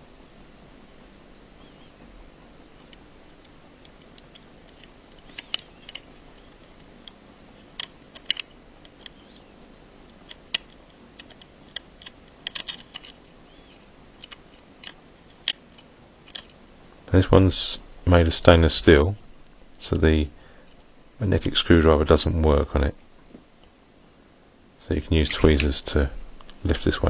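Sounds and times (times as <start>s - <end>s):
small screwdriver clicking on metal: 7.8s - 9.4s.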